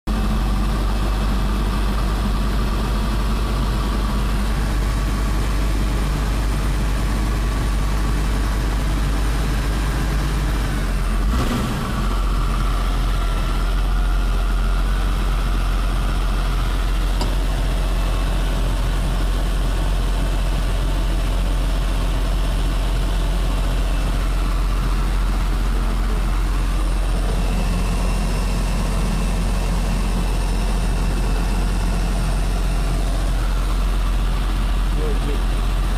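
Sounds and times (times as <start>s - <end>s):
heavy aircraft engine rumble: 0.1s - 35.9s.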